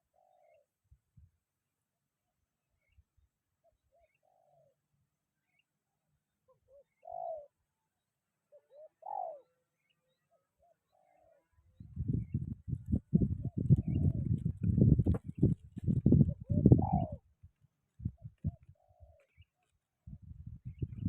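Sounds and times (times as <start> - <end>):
dove cooing: 0.0 - 0.7, 3.9 - 4.8, 6.5 - 7.6, 8.5 - 9.6, 10.6 - 11.4, 12.0 - 17.3, 18.2 - 19.4
wind buffeting microphone: 11.8 - 18.7, 20.0 - 21.0.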